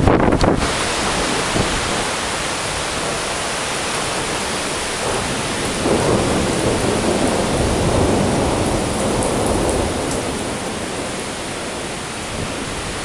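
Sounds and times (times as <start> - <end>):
heavy rain pouring: 0.0 - 13.0
low rumble of thunder: 3.9 - 13.0.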